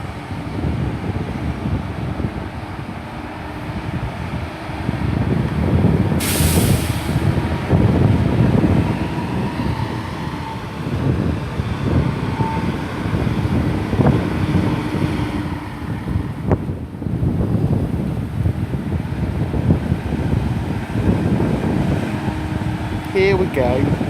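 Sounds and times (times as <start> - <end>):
train rumbling: 0.0 - 24.0
air hiss: 6.2 - 7.3.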